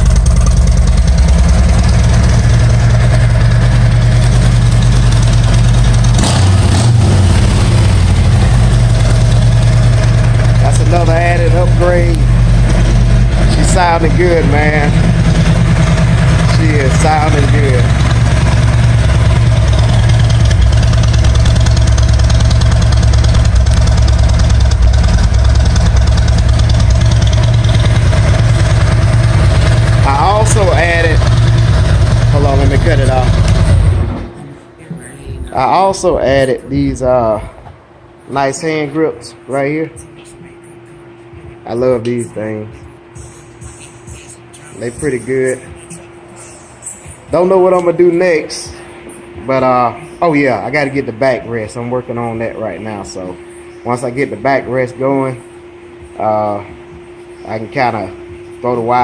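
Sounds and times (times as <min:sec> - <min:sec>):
motorcycle engine idling: 0:00.0 - 0:34.2.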